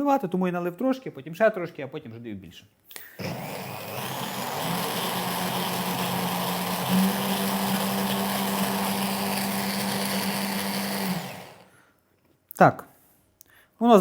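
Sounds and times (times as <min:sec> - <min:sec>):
electric blender running: 0:03.2 - 0:11.7.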